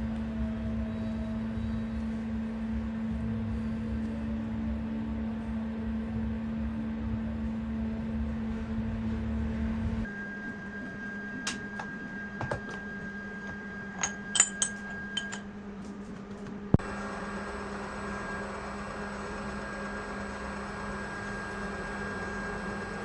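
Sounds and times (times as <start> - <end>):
light metallic clinks: 13.4 - 15.5
electric motor humming: 16.8 - 23.0.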